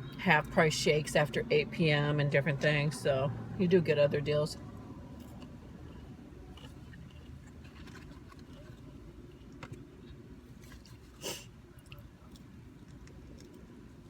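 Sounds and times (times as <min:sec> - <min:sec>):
sharp eating noise: 0:10.5 - 0:14.0.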